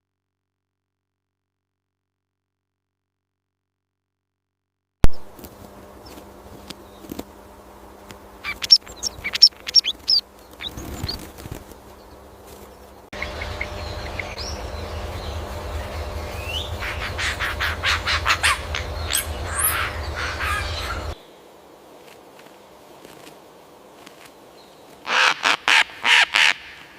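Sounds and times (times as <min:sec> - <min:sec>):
birds chirping: 0:05.1 - 0:26.9
steady hiss: 0:11.4 - 0:26.0.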